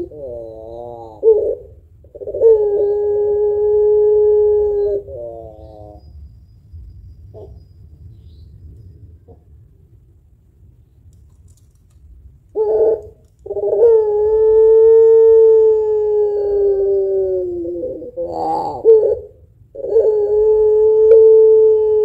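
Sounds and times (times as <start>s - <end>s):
dove cooing: 0.0s - 6.1s, 7.3s - 7.6s, 12.5s - 22.0s.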